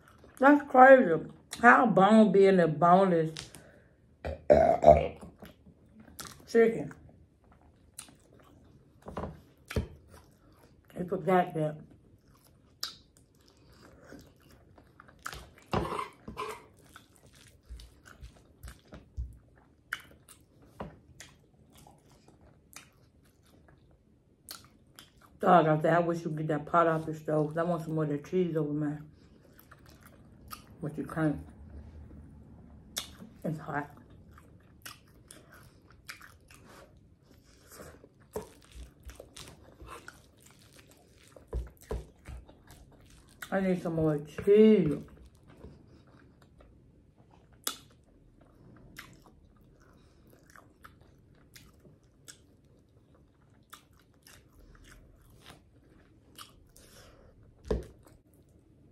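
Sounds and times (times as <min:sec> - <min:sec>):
chewing and lip smacking: 0:05.4 - 0:06.5, 0:07.4 - 0:10.8, 0:12.0 - 0:25.4, 0:29.2 - 0:30.8, 0:32.9 - 0:43.5, 0:45.1 - 0:57.2.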